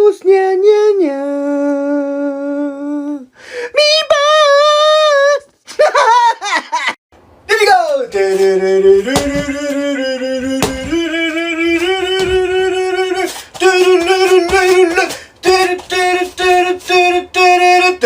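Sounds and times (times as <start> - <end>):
high voice singing wordless tune: 0.0 - 5.6, 7.5 - 18.0.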